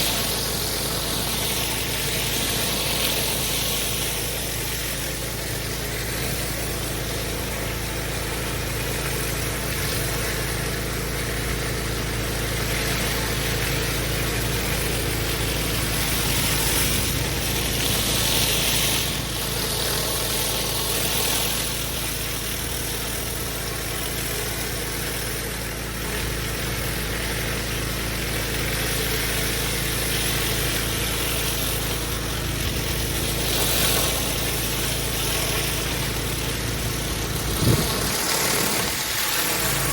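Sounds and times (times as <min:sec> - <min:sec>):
pressure washer engine running: 0:00.0 - 0:39.9
water jet hissing on paving: 0:00.0 - 0:39.9.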